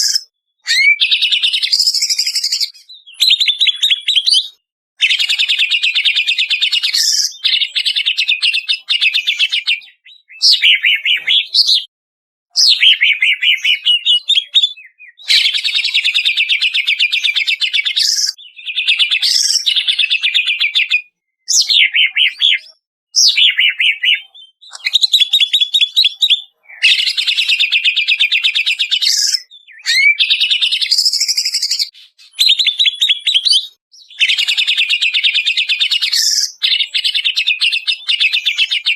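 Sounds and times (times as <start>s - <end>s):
bird singing rapid high notes: 0.0s - 11.9s.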